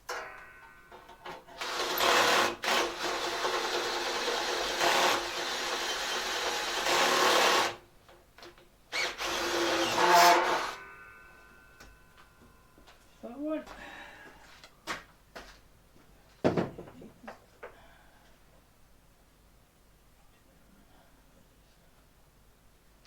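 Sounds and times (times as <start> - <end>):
handheld power tool running: 1.6 - 7.8, 8.9 - 10.8.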